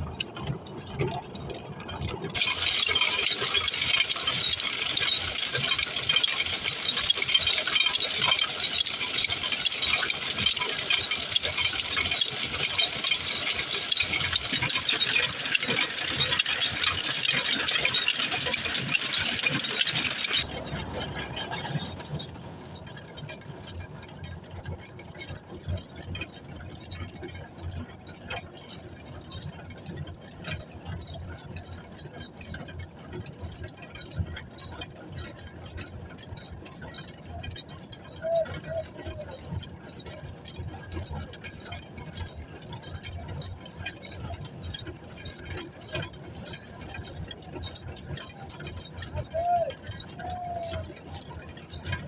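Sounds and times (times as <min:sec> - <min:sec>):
diesel engine rattling: 0:00.0 - 0:52.0
small clicks: 0:00.0 - 0:52.0.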